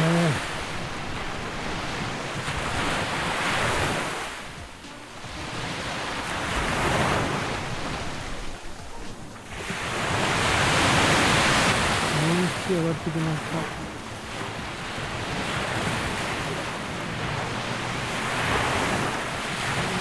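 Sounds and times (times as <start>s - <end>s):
surf breaking on sandy beach: 0.0s - 20.0s
wind on microphone: 13.6s - 20.0s.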